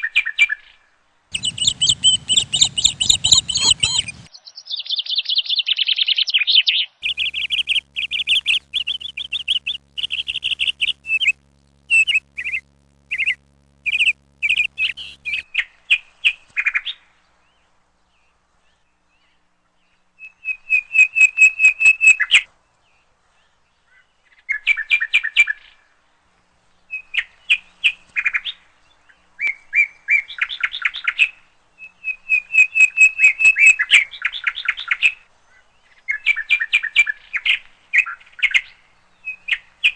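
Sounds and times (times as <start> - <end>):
bird chirping: 1.3 - 15.4.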